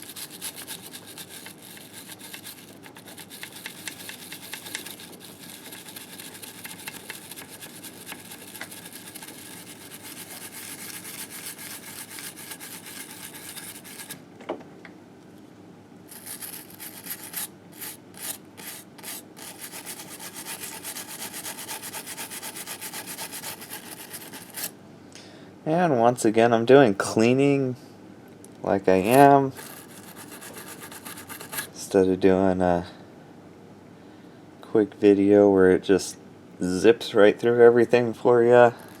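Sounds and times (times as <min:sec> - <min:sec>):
brush scrubbing metal: 0:00.0 - 0:14.2, 0:16.1 - 0:24.7, 0:29.0 - 0:31.7.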